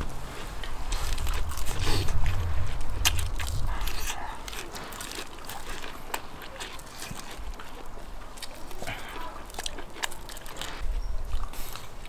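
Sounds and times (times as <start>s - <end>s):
crunching and chewing: 0.0s - 12.0s
low rumble: 0.6s - 5.1s.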